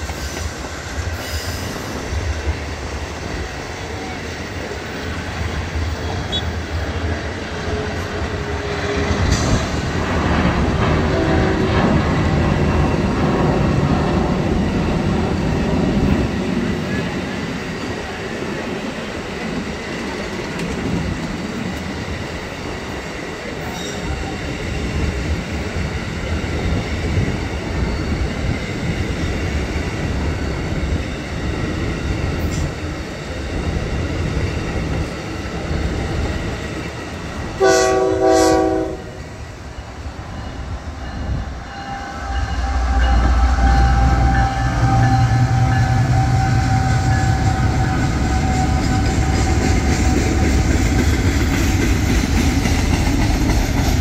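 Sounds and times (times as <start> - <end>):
diesel locomotive engine drone: 0.0 - 54.0
train wheels rumbling on rail: 0.0 - 54.0
train horn: 6.0 - 6.6, 10.9 - 12.0, 37.6 - 39.3, 41.4 - 50.5.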